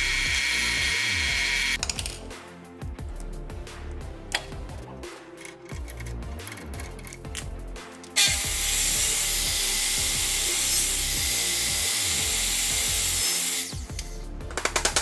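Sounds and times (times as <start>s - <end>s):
background music: 0.0s - 15.0s
power tool hissing: 8.2s - 13.9s.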